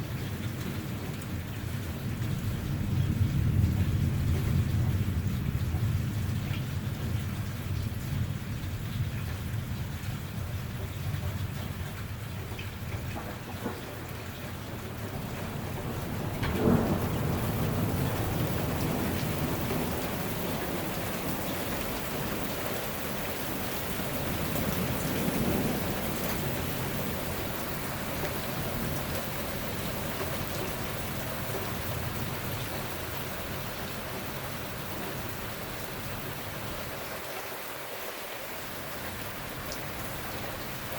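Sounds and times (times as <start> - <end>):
heavy rain: 0.0 - 40.9
thunder rolling and cracking: 0.5 - 9.8, 10.7 - 33.6.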